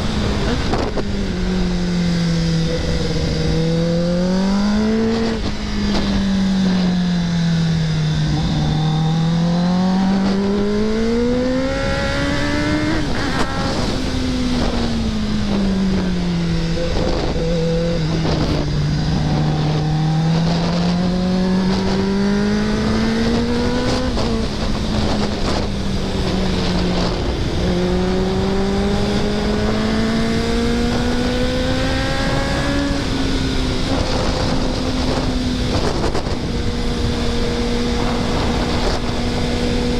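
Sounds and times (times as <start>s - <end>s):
motorcycle engine running hard: 0.0s - 39.9s
wind on microphone: 0.0s - 39.9s.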